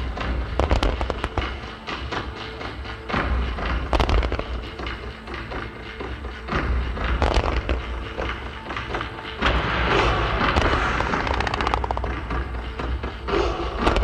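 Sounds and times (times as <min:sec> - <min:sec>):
fireworks launch reports and crackle: 0:00.0 - 0:01.6, 0:09.4 - 0:13.1.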